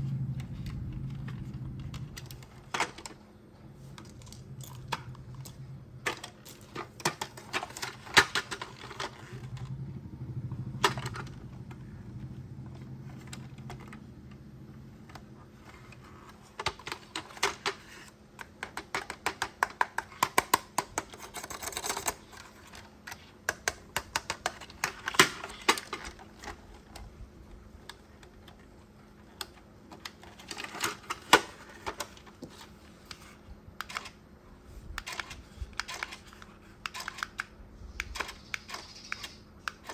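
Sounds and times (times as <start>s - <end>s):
low steady hum: 0.0s - 19.1s
plastic toy parts clicking: 3.9s - 9.8s, 15.1s - 28.6s, 29.2s - 34.2s, 34.8s - 39.9s.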